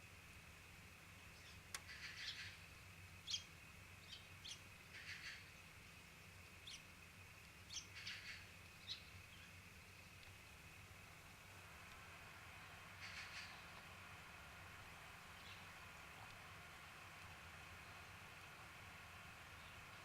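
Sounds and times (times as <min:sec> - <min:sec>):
faint bird chirps: 0:01.3 - 0:06.9, 0:07.7 - 0:10.2, 0:12.6 - 0:13.8, 0:15.3 - 0:15.8.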